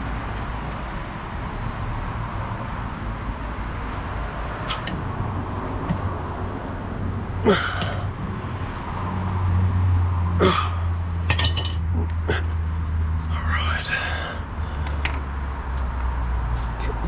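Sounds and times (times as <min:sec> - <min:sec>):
sharp clicks and knocks: 0:05.8 - 0:06.2.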